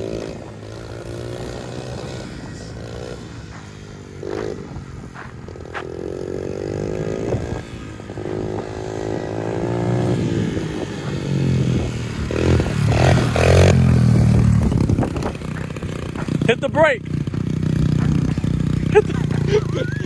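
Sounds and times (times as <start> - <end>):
pit bike engine revving: 0.0 - 20.0.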